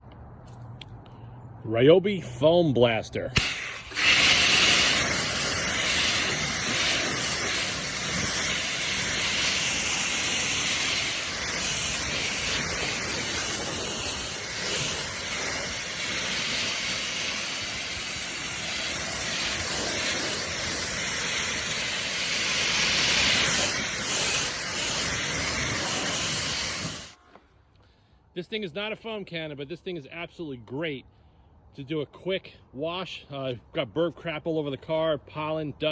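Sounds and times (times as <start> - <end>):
foam sprayer hissing: 3.4 - 27.2.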